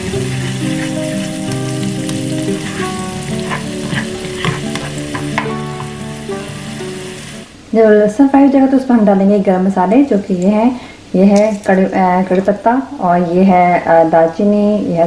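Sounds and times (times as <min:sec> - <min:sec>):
spatula scraping and knocking pan: 0:00.0 - 0:06.1
garlic sizzling in hot oil: 0:00.0 - 0:07.6
soft background music: 0:00.0 - 0:09.4.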